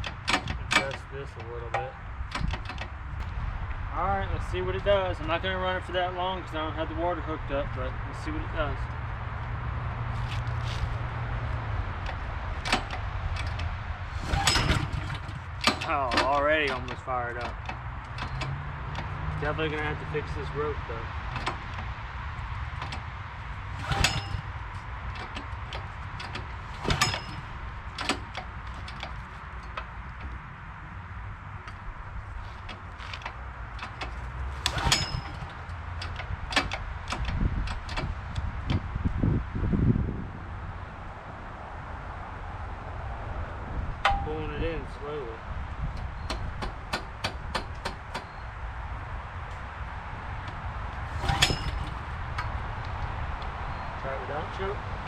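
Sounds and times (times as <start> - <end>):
starter rope pulled: 10.1 - 11.1, 12.0 - 20.6, 22.6 - 30.3, 31.7 - 38.7, 51.0 - 53.1
engine turning over: 12.0 - 20.4, 22.6 - 29.8, 32.5 - 38.0, 51.1 - 52.6
recoil pull-starter ticking: 32.5 - 38.8.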